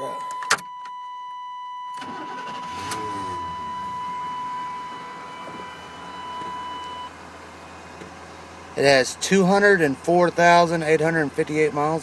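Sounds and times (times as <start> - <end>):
steady high tone: 1.9 - 7.2
engine idling: 2.0 - 12.0.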